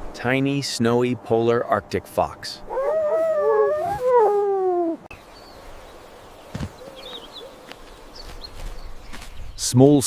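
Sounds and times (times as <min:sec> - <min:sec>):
fox whining call: 0:02.7 - 0:05.1.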